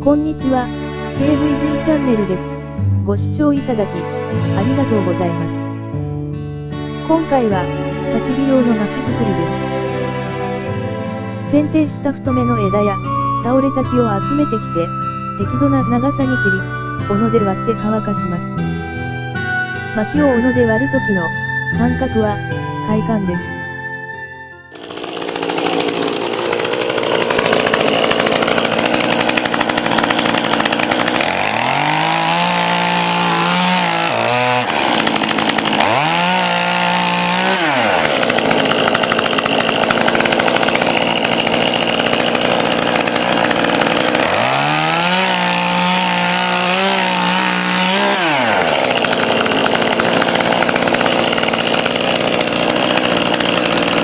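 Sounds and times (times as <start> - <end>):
chainsaw revving: 1.2 - 2.5, 3.8 - 5.5, 7.1 - 10.6, 24.7 - 54.0.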